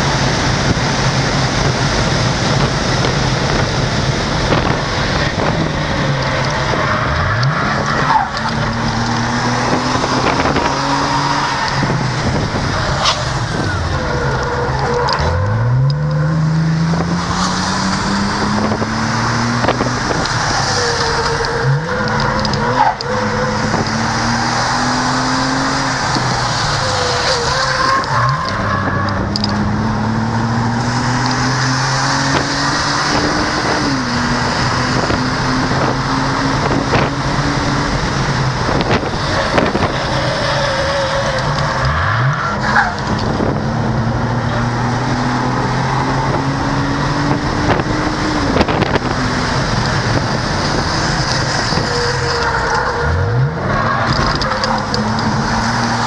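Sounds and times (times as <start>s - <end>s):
car engine revving: 0.0s - 56.0s
road and wind noise: 0.0s - 56.0s
tyres squealing: 20.3s - 29.5s.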